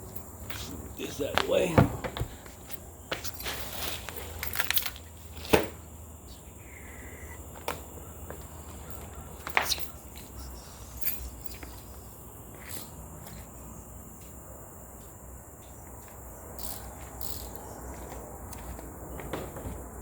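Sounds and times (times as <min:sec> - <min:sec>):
high insect trill: 0:00.0 - 0:20.0
clicks and knocks of parts handled: 0:02.1 - 0:05.7, 0:16.6 - 0:17.6.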